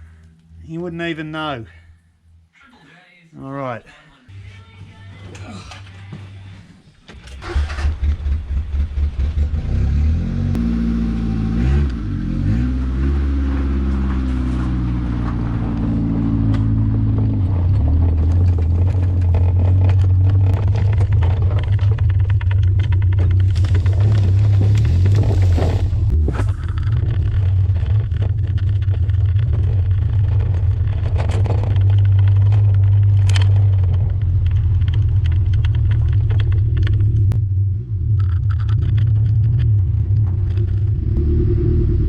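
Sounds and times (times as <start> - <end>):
car engine starting and running: 7.1 - 42.0.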